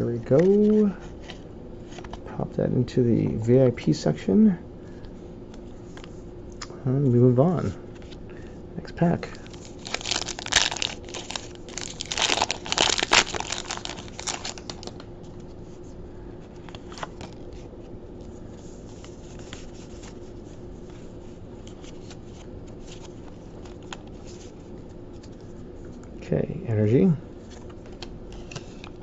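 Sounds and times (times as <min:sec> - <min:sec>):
foil wrapper tearing and crinkling: 0:09.4 - 0:15.0.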